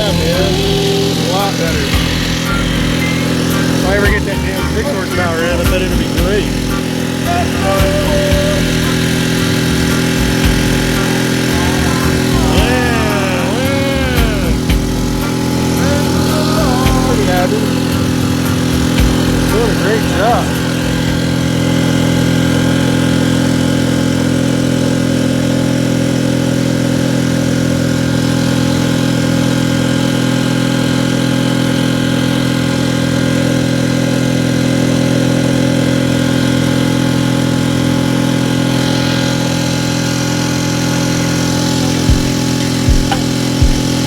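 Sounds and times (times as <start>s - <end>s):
outboard motor running: 0.0s - 44.0s
sharp knock: 42.9s - 43.9s.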